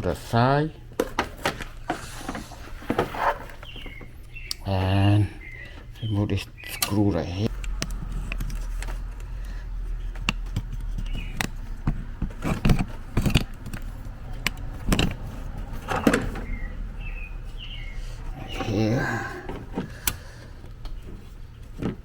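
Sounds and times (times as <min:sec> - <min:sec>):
tools clicking and knocking: 0:07.5 - 0:16.5
low hum: 0:07.5 - 0:20.8.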